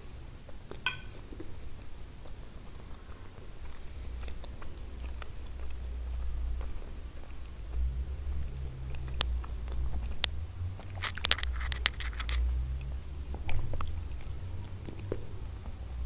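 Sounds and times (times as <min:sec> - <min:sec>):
chewing chicken wing: 0:00.0 - 0:16.0
steady low hum: 0:00.0 - 0:16.0
crisp crackles: 0:10.9 - 0:12.5.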